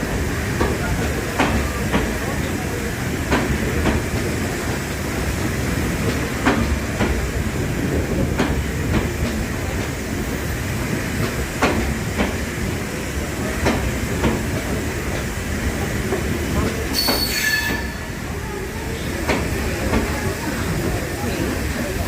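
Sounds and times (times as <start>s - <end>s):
train rumbling on rails: 0.0s - 22.0s
wheels clacking over rail joints: 11.2s - 12.4s.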